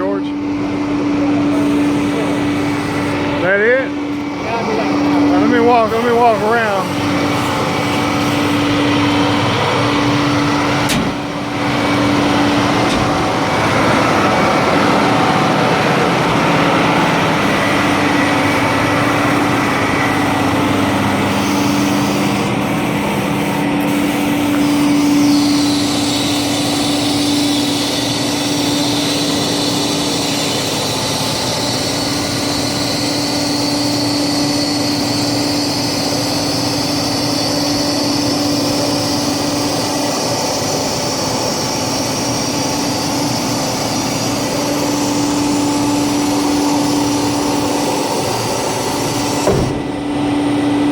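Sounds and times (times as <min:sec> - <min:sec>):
diesel truck engine running: 0:00.0 - 0:28.1, 0:43.7 - 0:50.9
constant whine: 0:00.0 - 0:50.9
high hiss: 0:01.5 - 0:03.4.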